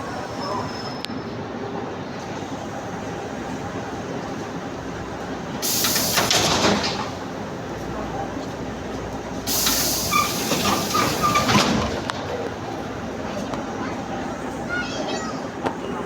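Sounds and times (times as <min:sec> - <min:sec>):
train rumbling: 0:00.0 - 0:16.0
compressed air hissing: 0:05.6 - 0:07.4, 0:09.4 - 0:11.9.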